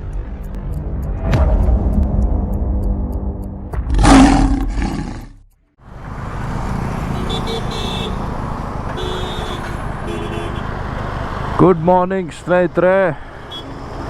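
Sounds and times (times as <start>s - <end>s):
engine and traffic rumble: 0.0s - 14.0s
loud roar: 3.9s - 5.4s.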